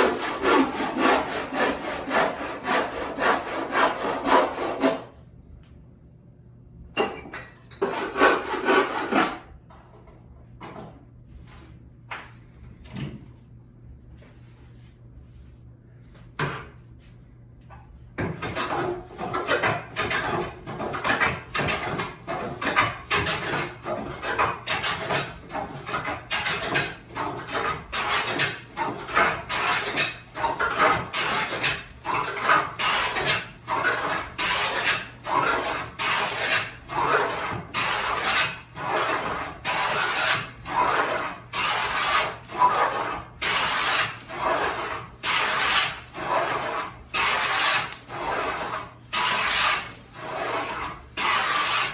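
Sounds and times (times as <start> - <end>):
hand tool strokes on wood: 0.0 - 5.1, 7.8 - 9.4, 32.4 - 51.9.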